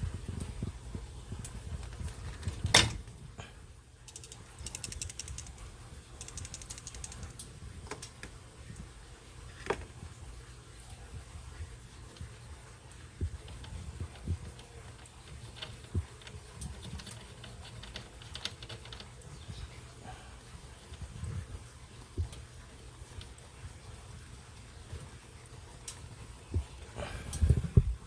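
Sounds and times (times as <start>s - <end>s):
ratchet-like clicks: 4.1s - 7.4s
sharp mechanical clicks: 4.1s - 7.5s.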